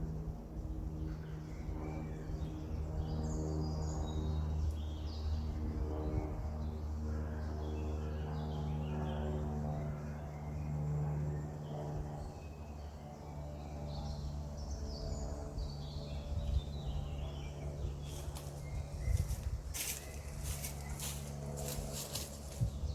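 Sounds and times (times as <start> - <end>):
low mechanical hum: 0.0 - 22.9
small birds chirping: 7.4 - 22.9.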